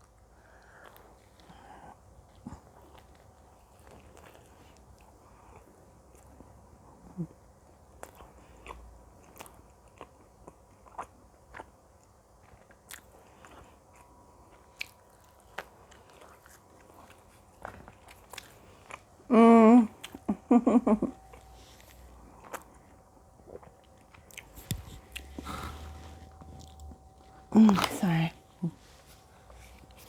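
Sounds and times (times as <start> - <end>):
mouth clicks and chewing: 7.9 - 19.1, 21.3 - 25.8.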